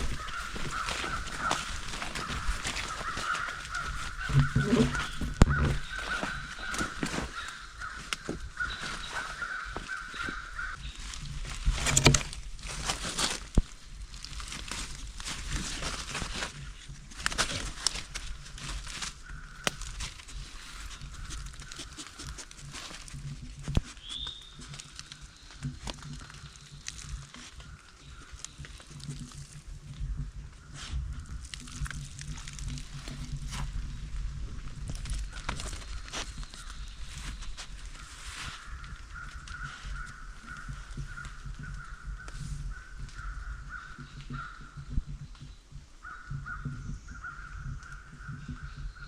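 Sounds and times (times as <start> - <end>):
scattered clicks and crackles: 9.4 - 30.4, 31.2 - 43.3.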